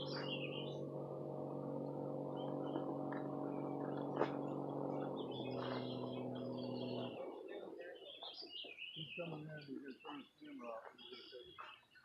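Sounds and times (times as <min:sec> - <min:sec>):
electric motor humming: 0:00.0 - 0:07.2.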